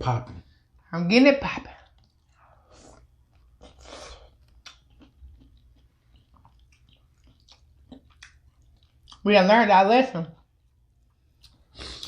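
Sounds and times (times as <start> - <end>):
person chewing: 1.8 - 9.2, 10.4 - 12.0.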